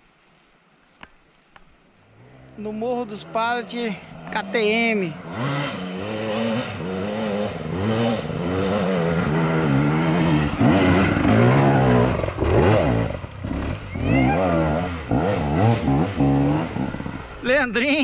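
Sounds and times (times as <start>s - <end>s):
motorcycle engine revving hard: 4.2s - 17.4s.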